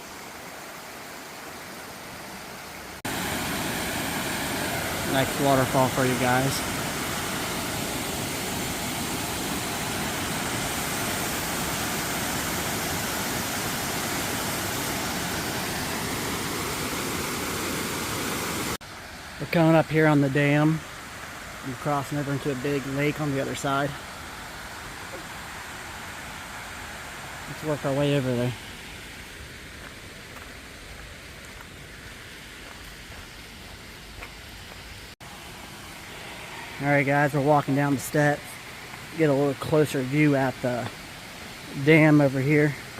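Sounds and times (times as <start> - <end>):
waterfall roaring: 0.0 - 32.8, 35.2 - 42.9
water spilling over a dam: 3.1 - 18.8.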